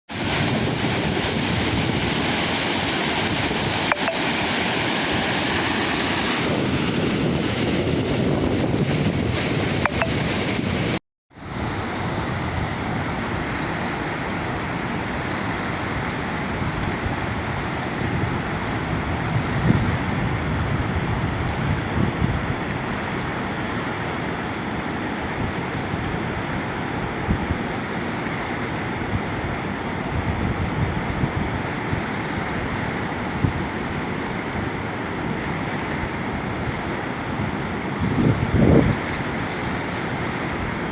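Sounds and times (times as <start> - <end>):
water rushing and falling: 0.1 - 11.0.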